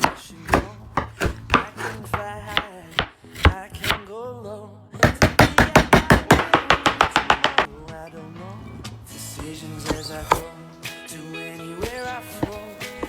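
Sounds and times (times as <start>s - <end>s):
knife chopping on cutting board: 0.0s - 4.0s, 5.0s - 7.7s, 9.4s - 10.5s, 11.8s - 13.0s.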